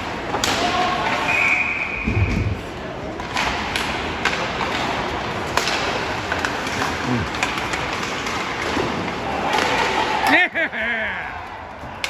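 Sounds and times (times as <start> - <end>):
sharp hockey clacks: 3.1 - 10.4.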